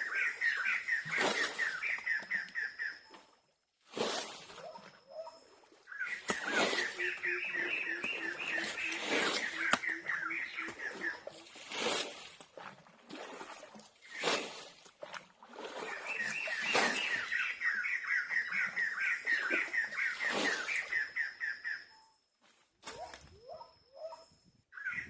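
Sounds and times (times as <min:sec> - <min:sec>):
bird chirping rapidly: 0:00.0 - 0:03.1, 0:04.6 - 0:11.6, 0:15.9 - 0:22.1.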